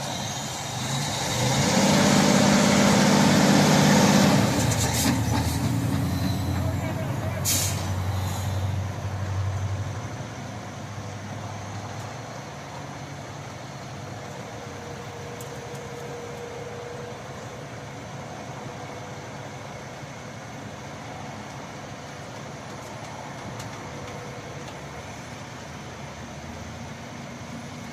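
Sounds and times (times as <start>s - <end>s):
truck engine idling: 0.0s - 11.6s.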